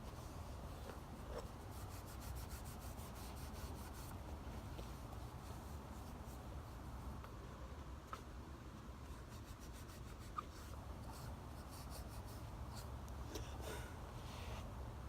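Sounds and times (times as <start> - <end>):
steel wool scratching wood: 0.9 - 4.2.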